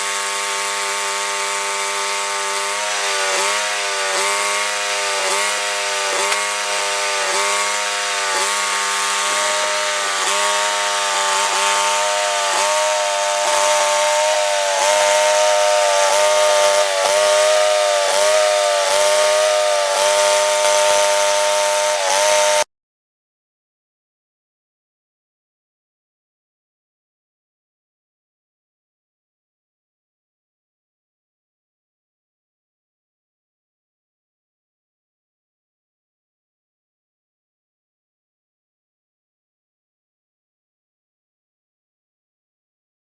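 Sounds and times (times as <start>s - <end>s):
bandsaw mill sawing a log: 0.0s - 22.7s.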